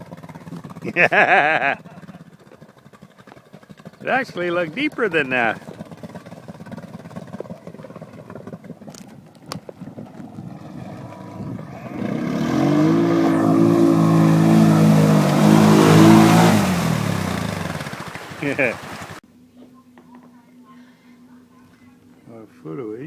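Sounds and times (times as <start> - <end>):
road noise: 1.8 - 19.2
vehicle engine passing by: 10.0 - 19.2.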